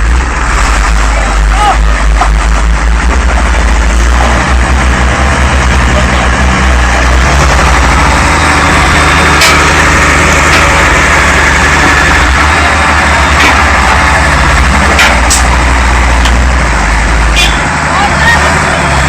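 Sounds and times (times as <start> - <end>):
road noise: 0.0 - 19.0
vehicle engine running: 0.0 - 19.0
sharp clicks or knocks: 9.2 - 11.0, 13.3 - 14.1, 14.7 - 15.6, 16.2 - 16.5.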